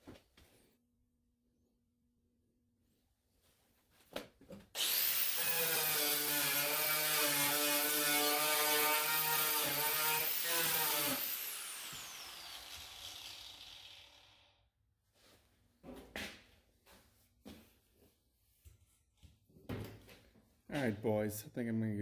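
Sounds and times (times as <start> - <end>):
angle grinder whining: 4.8 - 14.5.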